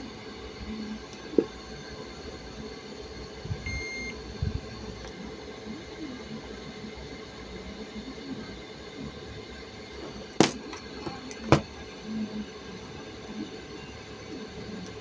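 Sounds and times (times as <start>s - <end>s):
steady electrical hum: 0.0s - 6.6s
short electronic beep: 3.7s - 4.1s.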